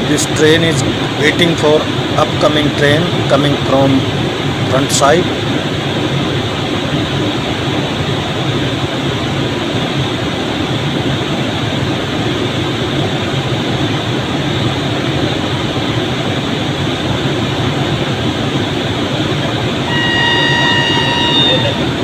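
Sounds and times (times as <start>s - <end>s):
train rumbling: 0.0s - 10.0s, 16.8s - 22.0s
train horn: 19.8s - 22.0s.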